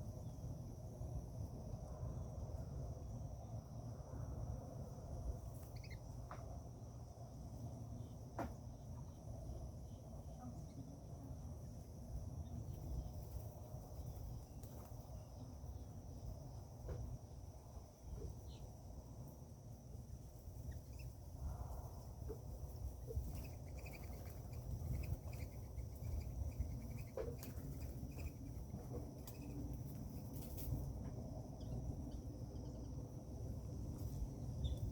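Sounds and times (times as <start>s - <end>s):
insect drone: 0.0s - 34.9s
faint bird chirps: 5.5s - 6.4s, 20.4s - 30.8s.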